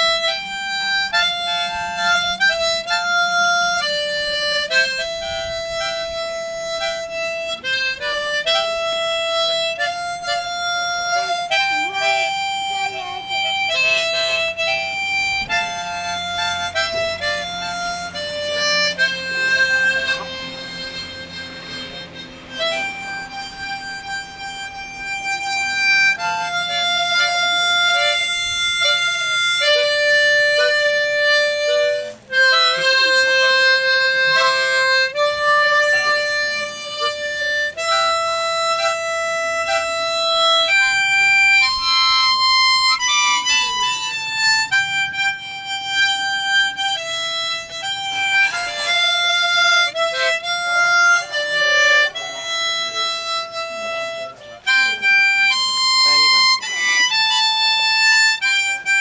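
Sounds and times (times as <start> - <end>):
harmonica playing slow melody: 0.0 - 59.0.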